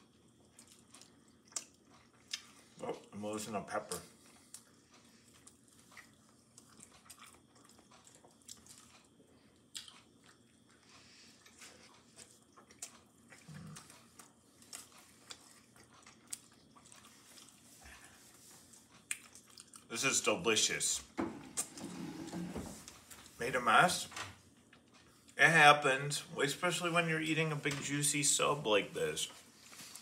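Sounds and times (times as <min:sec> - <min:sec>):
mouth chewing clicks and smacks: 0:00.3 - 0:02.6, 0:04.2 - 0:17.6, 0:18.8 - 0:19.9.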